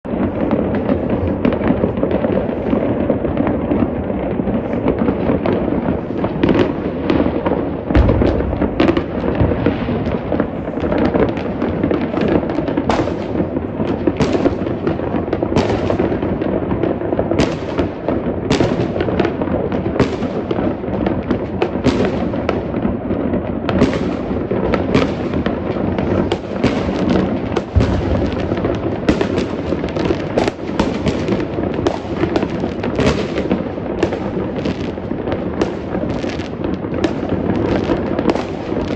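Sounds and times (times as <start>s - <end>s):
firework bangs: 0.0s - 38.9s
fireworks crackling and rumbling: 0.0s - 38.9s
deep firework boom: 4.7s - 14.6s, 26.2s - 30.1s.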